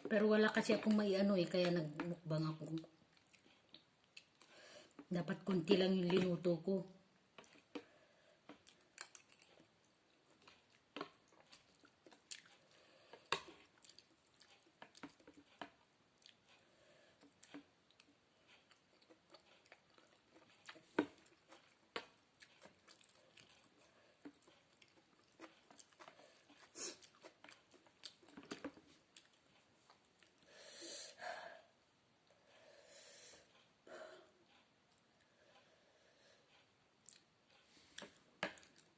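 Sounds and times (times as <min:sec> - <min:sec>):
close-up chewing of noodles: 0:02.6 - 0:05.1, 0:07.2 - 0:30.7, 0:36.4 - 0:38.9.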